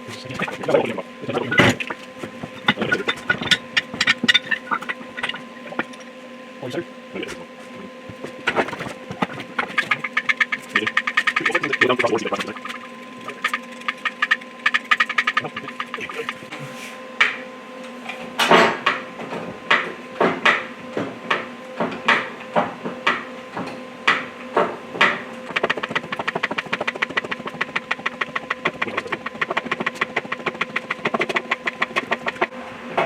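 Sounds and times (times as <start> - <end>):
faint steady hum: 0.0 - 33.0
fast even clicking: 8.6 - 16.5, 25.4 - 32.5.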